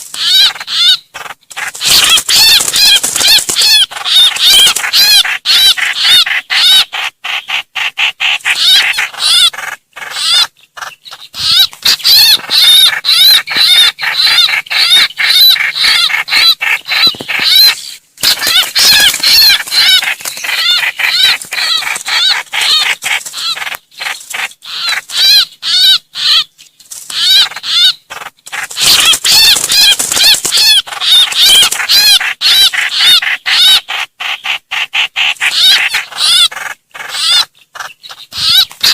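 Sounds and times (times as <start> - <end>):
bulbul distress chatter: 1.6 - 5.8, 11.4 - 23.8, 28.6 - 32.8.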